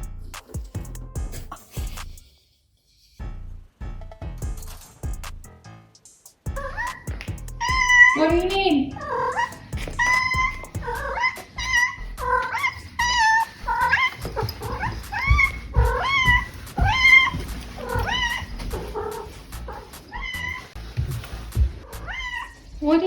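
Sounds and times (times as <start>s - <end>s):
cat meowing: 6.6s - 20.8s, 21.4s - 23.0s.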